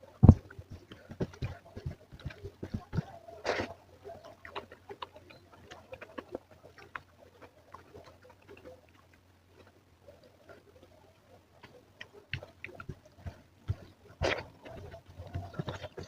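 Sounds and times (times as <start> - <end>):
person chewing food: 11.6 - 16.0.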